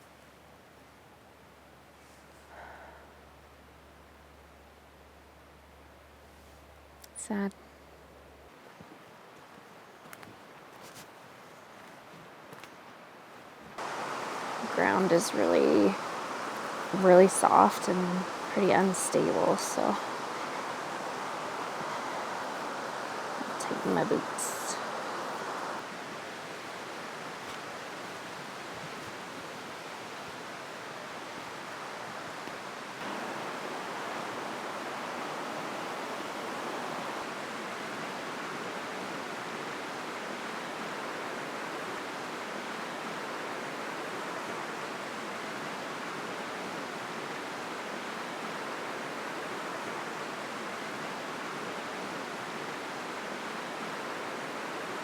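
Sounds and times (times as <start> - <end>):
steady rushing hiss: 13.8 - 55.0.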